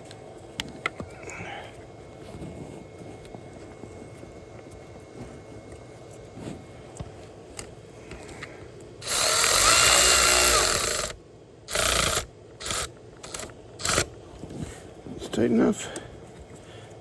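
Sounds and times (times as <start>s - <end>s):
power tool driving a bolt: 9.0s - 14.1s.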